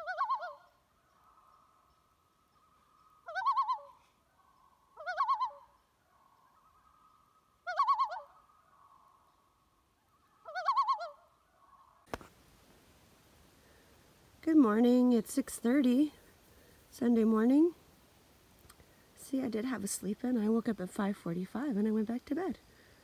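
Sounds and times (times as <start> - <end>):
bird quavering call: 0.0 - 1.7, 2.6 - 9.2, 10.3 - 12.0
faint steady tone: 0.0 - 23.0
steady hiss: 12.1 - 20.2, 22.3 - 23.0.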